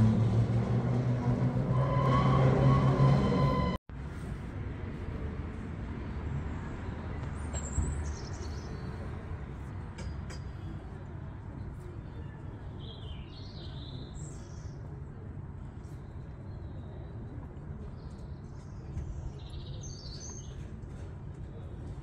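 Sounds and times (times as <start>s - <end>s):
low outdoor rumble: 0.0s - 6.3s.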